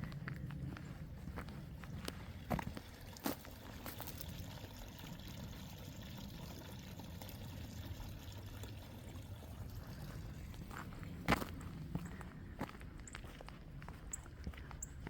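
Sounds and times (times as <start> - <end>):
trickle of running water: 2.0 - 11.1.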